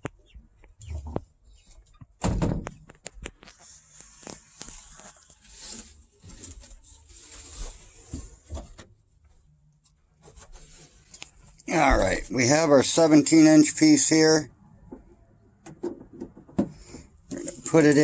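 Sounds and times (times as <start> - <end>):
loud thunk: 2.2 - 2.7.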